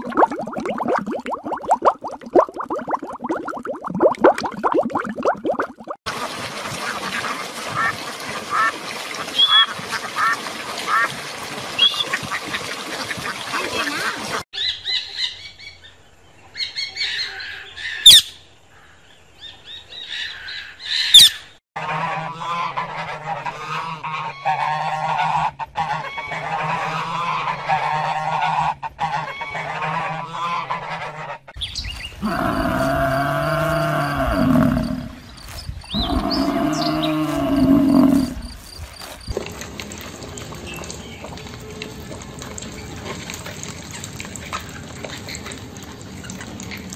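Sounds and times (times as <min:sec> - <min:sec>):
low rising and falling animal call: 0:32.2 - 0:35.2, 0:35.9 - 0:38.6.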